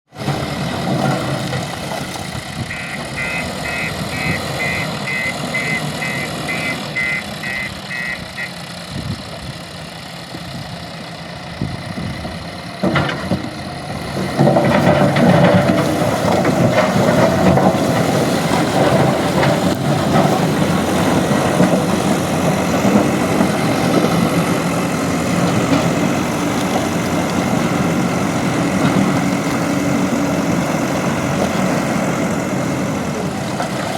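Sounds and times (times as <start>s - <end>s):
diesel engine running: 0.1s - 33.9s
reversing alarm beeping: 2.6s - 8.7s.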